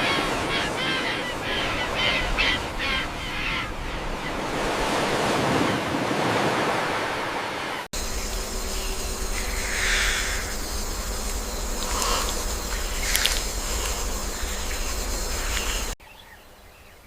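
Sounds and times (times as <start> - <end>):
bird harsh calls: 0.0 - 4.6, 8.0 - 16.0
steady rushing noise: 8.0 - 16.0.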